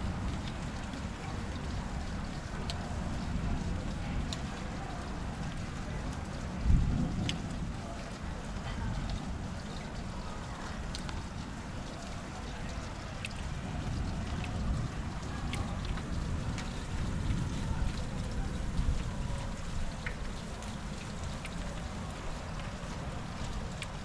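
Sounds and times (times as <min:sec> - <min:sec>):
thunder rumble: 0:00.0 - 0:01.0
raindrops ticking: 0:00.0 - 0:04.5, 0:13.2 - 0:18.4, 0:20.0 - 0:24.0
rain hiss: 0:00.0 - 0:24.0.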